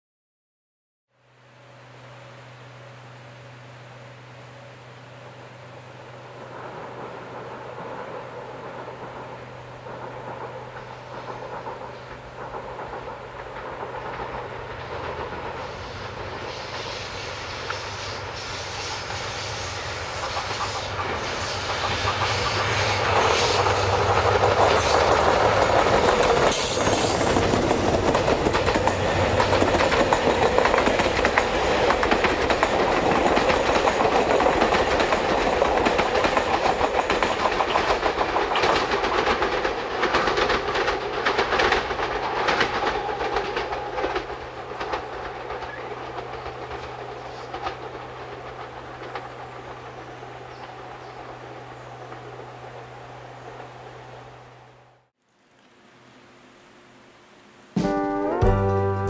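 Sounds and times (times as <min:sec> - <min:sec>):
train engine hum: 0:01.1 - 0:59.0
wheels clattering over rail joints: 0:06.4 - 0:16.8, 0:20.2 - 0:52.4.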